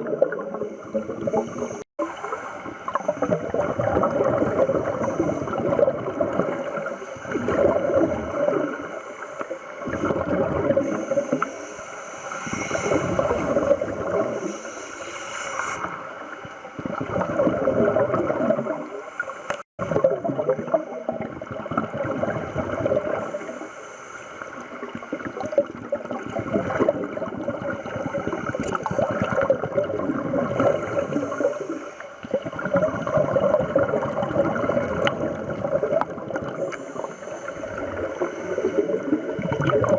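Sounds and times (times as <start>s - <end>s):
underwater regulator breathing bubbles: 0.0s - 16.0s.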